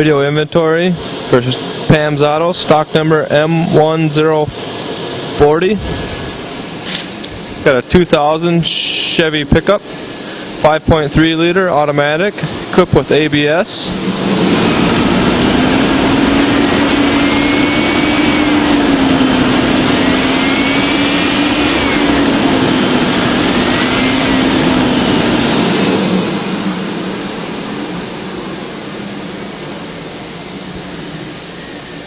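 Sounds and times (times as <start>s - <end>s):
truck engine revving and idling: 11.2s - 32.0s.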